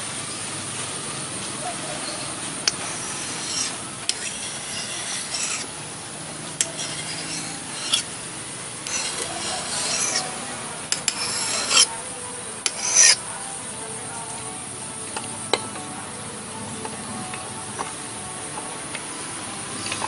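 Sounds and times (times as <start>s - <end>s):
abrasive scraping hatchet blade: 2.6s - 5.8s, 6.6s - 13.3s.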